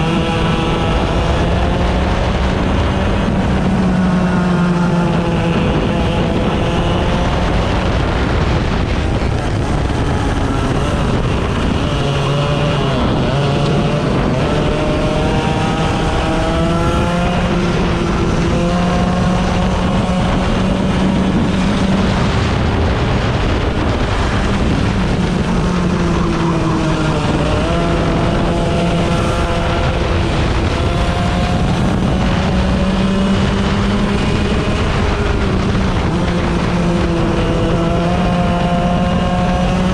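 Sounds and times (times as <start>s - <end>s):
kart engine revving: 0.0s - 39.9s
track noise: 0.0s - 39.9s
wind: 0.0s - 39.9s.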